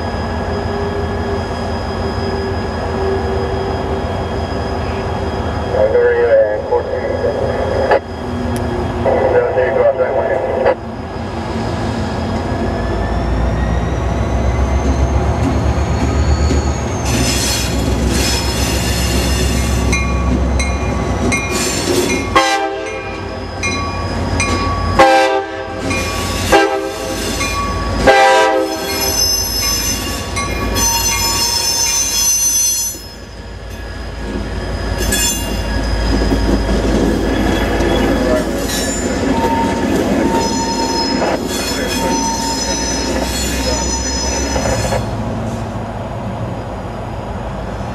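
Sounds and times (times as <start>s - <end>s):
train wheels squealing: 0.0s - 9.3s, 10.4s - 25.1s, 25.8s - 45.7s
diesel locomotive engine rumbling: 0.0s - 47.9s
train horn blasts: 22.3s - 23.2s, 25.0s - 27.2s, 28.0s - 29.2s.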